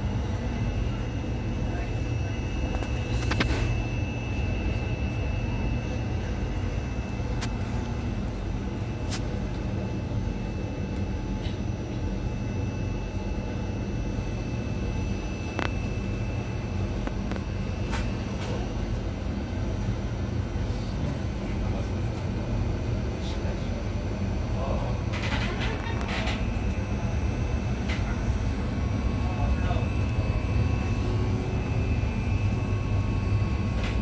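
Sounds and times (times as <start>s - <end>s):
train low rumble: 0.0s - 34.0s
thin high whine: 25.1s - 34.0s.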